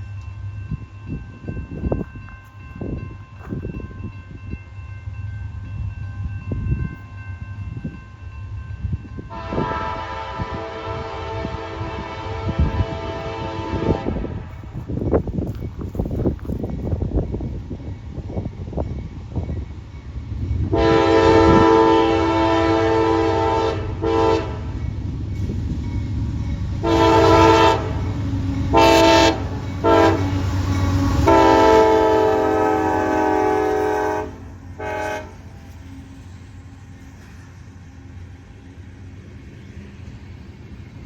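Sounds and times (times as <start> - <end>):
diesel train rumbling: 0.0 - 41.0
locomotive air horn blasts: 9.3 - 14.5, 20.7 - 24.7, 26.8 - 28.1, 28.7 - 30.5, 31.1 - 35.6.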